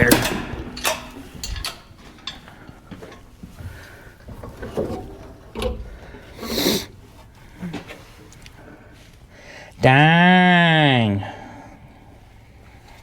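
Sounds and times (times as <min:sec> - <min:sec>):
clicks and knocks of hand tools: 0:00.0 - 0:06.5.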